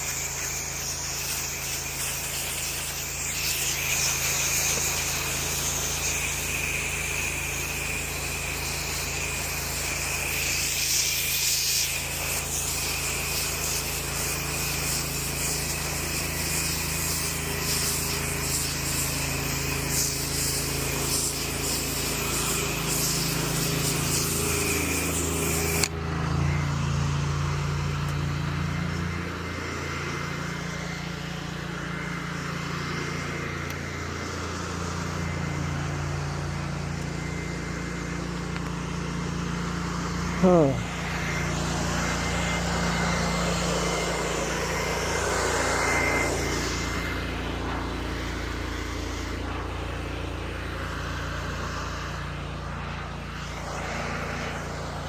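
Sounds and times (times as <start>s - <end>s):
pressure washer engine drone: 0.0s - 55.0s
pressure washer spraying: 0.0s - 55.0s.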